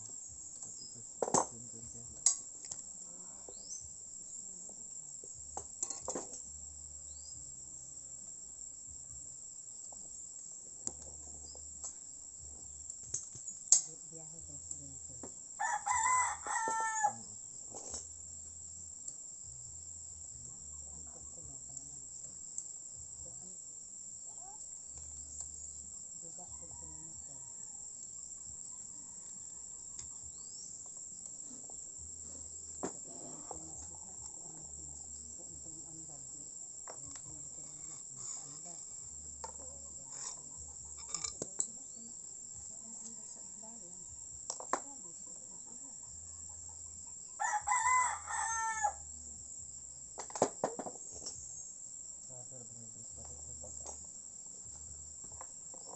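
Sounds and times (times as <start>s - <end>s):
crickets chirring: 0.0s - 55.9s
rooster crowing: 15.6s - 17.3s, 47.4s - 49.0s.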